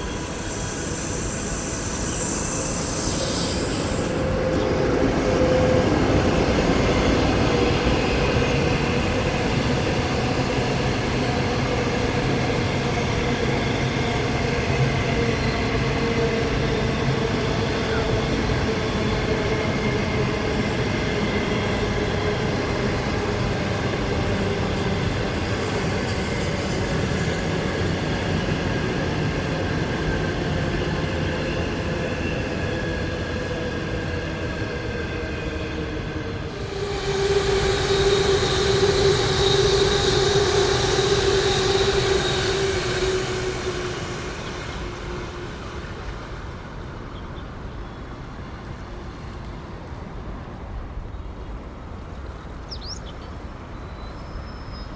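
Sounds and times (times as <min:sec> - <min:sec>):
high-pitched squeal and hiss: 0:00.0 - 0:07.0, 0:36.4 - 0:46.2
train rumbling: 0:00.0 - 0:54.9.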